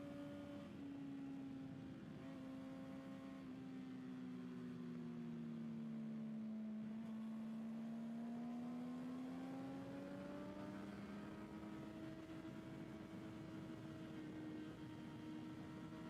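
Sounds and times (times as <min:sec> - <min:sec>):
wind and road noise: 0:07.2 - 0:16.0.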